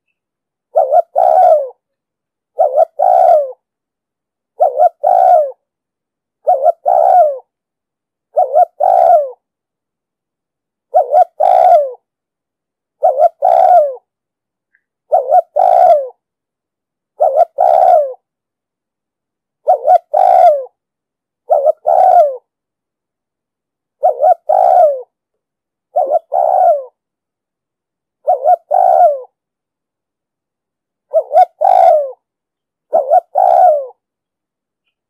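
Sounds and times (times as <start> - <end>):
dove cooing: 0.7 - 1.9, 2.5 - 3.6, 4.6 - 5.6, 6.4 - 7.5, 8.3 - 9.4, 10.9 - 12.1, 13.0 - 14.1, 15.1 - 16.2, 17.2 - 18.3, 19.6 - 20.8, 21.4 - 22.5, 24.0 - 25.2, 25.9 - 27.0, 28.2 - 29.4, 31.1 - 32.3, 32.9 - 34.0.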